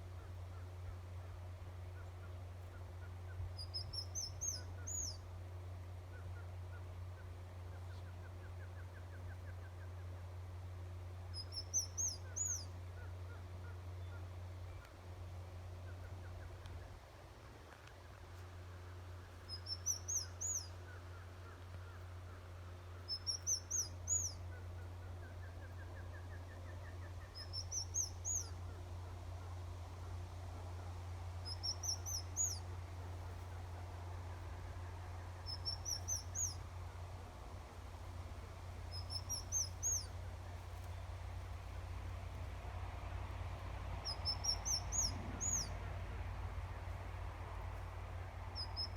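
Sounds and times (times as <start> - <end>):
small bird calling: 0.0 - 5.3, 11.3 - 15.0, 17.8 - 36.9, 38.2 - 42.5, 44.0 - 46.0, 48.6 - 48.9
steady low hum: 0.0 - 48.9.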